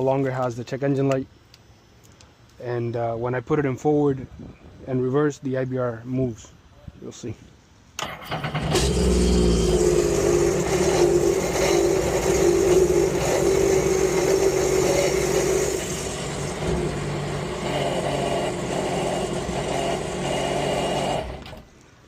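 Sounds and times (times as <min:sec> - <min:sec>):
watercraft engine running: 0:08.4 - 0:21.4.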